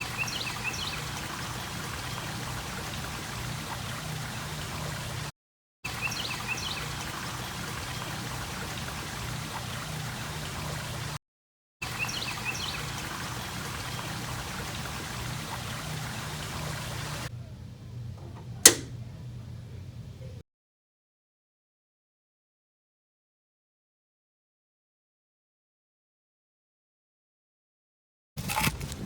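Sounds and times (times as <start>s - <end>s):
running stream water: 0.0s - 5.3s, 5.9s - 11.2s, 11.8s - 19.0s.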